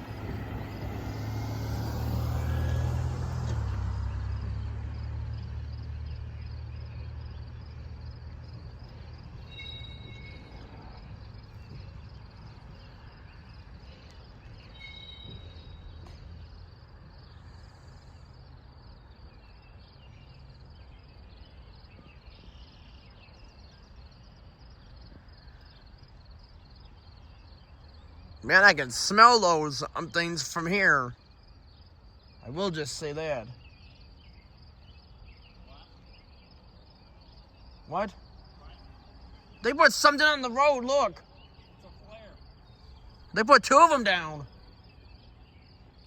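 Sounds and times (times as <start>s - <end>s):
low engine rumble: 0.0s - 18.3s
insects chirping: 0.0s - 46.0s
short high calls: 9.5s - 10.6s, 37.9s - 44.6s.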